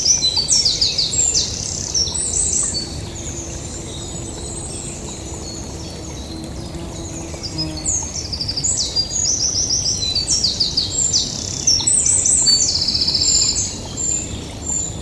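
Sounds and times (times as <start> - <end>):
songbird singing: 9.9 - 15.0.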